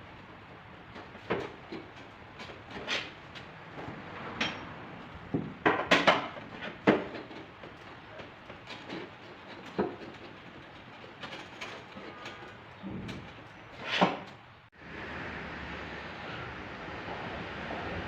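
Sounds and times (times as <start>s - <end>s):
dent repair tools knocking: 4.4s - 14.4s.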